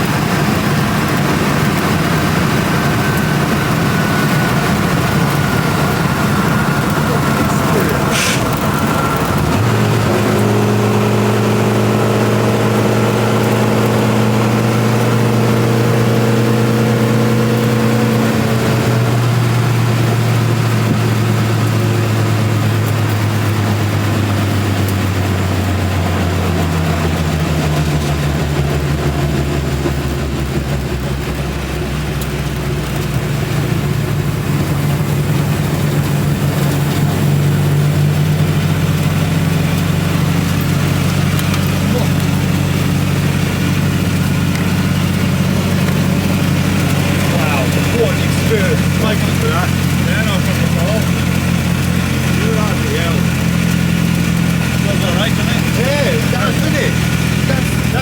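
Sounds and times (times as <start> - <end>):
van engine droning: 0.0 - 58.0.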